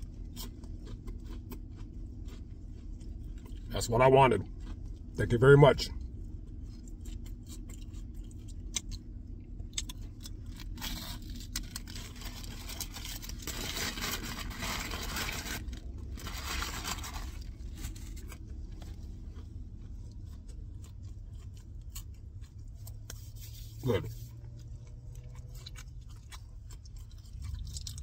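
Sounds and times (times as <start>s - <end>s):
person chewing crunchy food: 0.0s - 28.0s.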